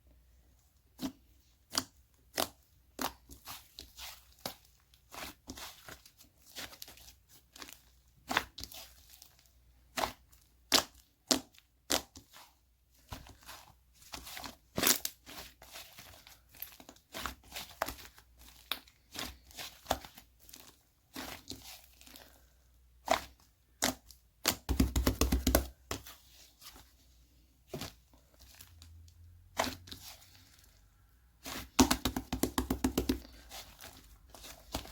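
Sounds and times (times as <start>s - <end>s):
slime crackling: 27.7s - 34.9s.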